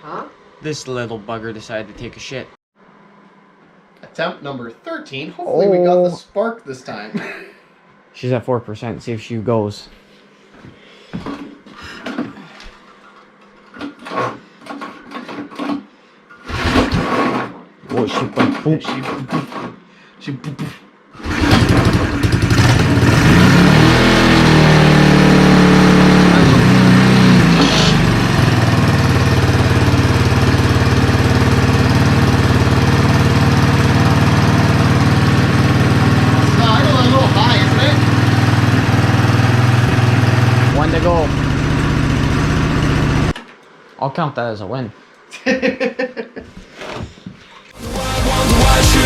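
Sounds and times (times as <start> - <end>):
engine recoil starter pulls: 16.4 - 17.5, 21.2 - 23.5, 26.0 - 28.6
engine idling: 21.2 - 43.4.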